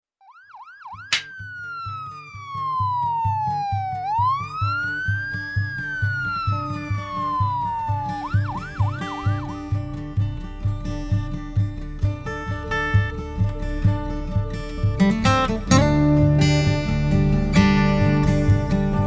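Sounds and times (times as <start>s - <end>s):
siren sweeps: 0.2s - 9.6s
warbling siren: 0.2s - 9.8s
sharp hit: 1.1s - 1.4s.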